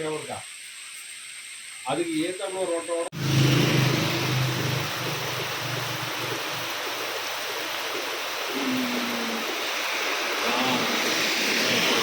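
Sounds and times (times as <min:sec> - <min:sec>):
heavy rain falling: 0:03.2 - 0:12.0.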